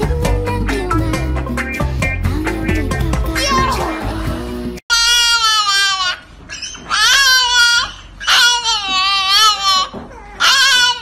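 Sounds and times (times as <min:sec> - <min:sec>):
puppy howling: 0:04.9 - 0:11.0.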